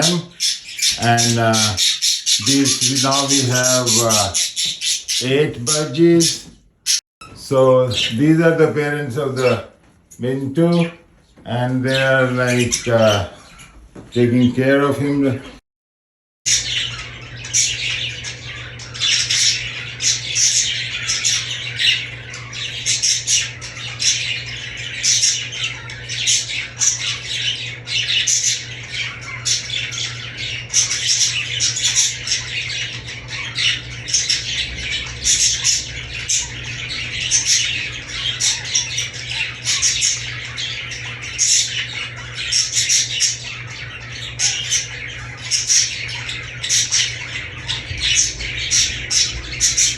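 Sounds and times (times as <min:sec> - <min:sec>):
budgerigars chattering and squawking: 0:00.0 - 0:15.6, 0:16.5 - 0:49.9
steady low hum: 0:16.5 - 0:49.9.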